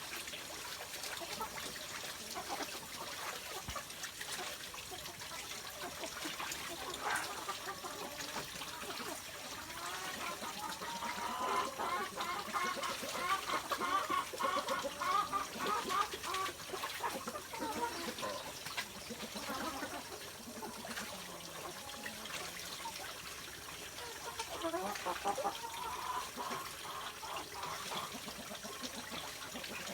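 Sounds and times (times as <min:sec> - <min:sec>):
water splashing in a pool: 0:00.0 - 0:29.9
ducks quacking: 0:06.7 - 0:21.8, 0:23.9 - 0:29.9.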